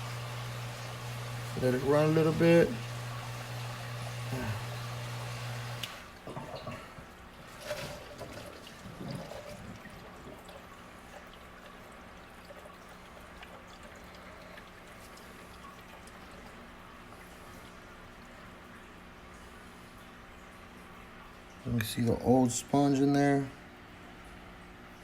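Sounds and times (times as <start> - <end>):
water trickling and splashing: 5.8 - 25.0.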